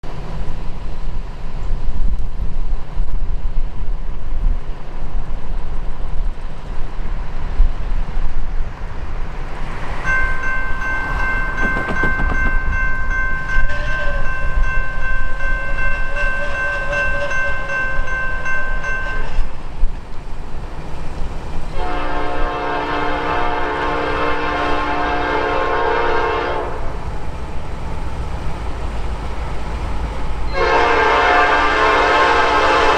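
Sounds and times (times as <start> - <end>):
low rumble of train: 0.0 - 32.9
locomotive horn chord: 13.5 - 14.5, 15.4 - 17.9, 21.8 - 27.0, 30.5 - 32.9.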